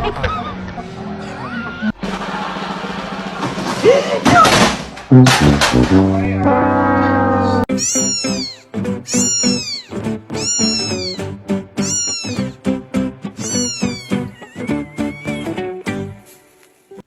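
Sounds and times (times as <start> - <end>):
cat meowing: 7.7 - 12.6, 13.4 - 15.7.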